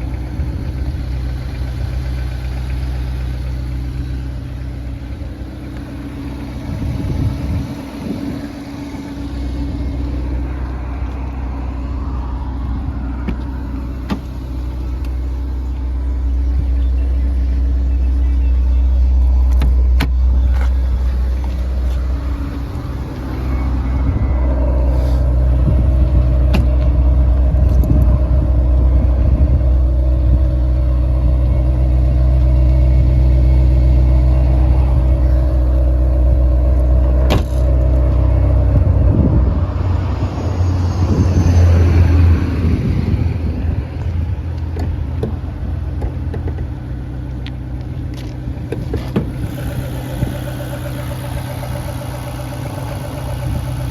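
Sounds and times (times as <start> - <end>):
car engine low rumble: 0.0 - 53.9
rising and falling tone: 38.1 - 43.9.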